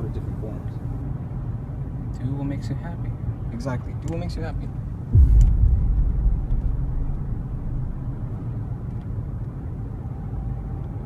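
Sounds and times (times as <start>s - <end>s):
car interior rumble: 5.2s - 9.4s.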